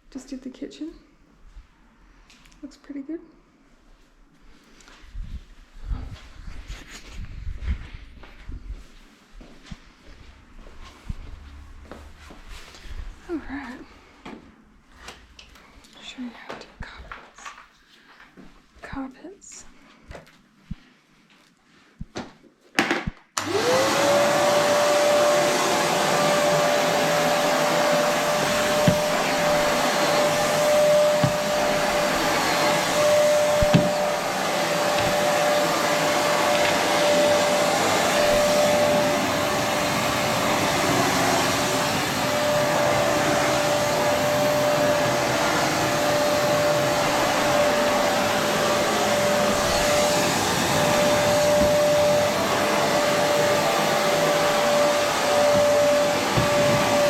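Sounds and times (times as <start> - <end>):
vacuum cleaner whining: 23.4 - 57.0.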